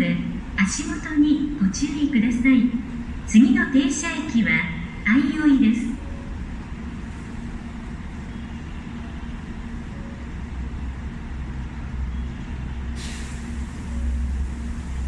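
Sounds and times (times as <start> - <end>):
train equipment humming: 0.0 - 15.0
short hiss: 13.0 - 13.9.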